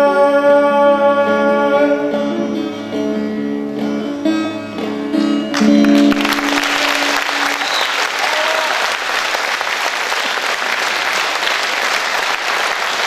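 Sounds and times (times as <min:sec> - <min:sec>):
live band playing: 0:01.3 - 0:08.6
audience applause: 0:05.6 - 0:13.0.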